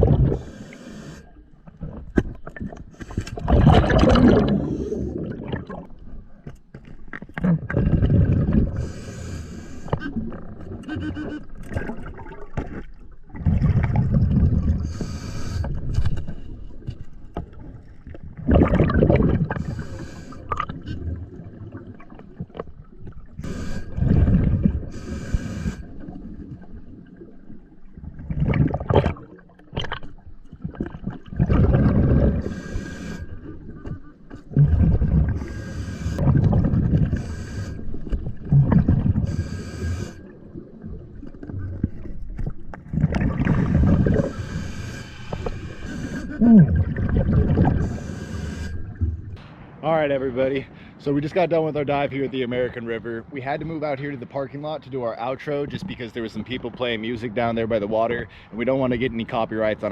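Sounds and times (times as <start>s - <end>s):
exhaled bubbles underwater: 0.0s - 6.4s, 7.3s - 49.4s
regulator hissing inhale: 0.4s - 1.4s, 8.7s - 10.0s, 14.8s - 16.3s, 19.6s - 20.6s, 23.4s - 24.0s, 24.8s - 26.0s, 32.4s - 33.5s, 35.4s - 36.2s, 37.1s - 38.2s, 39.2s - 40.3s, 44.3s - 46.4s, 47.8s - 49.0s.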